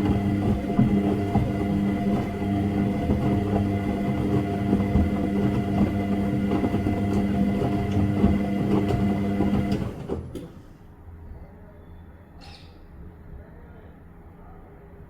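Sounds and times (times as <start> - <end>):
washing machine running: 0.0 - 10.6.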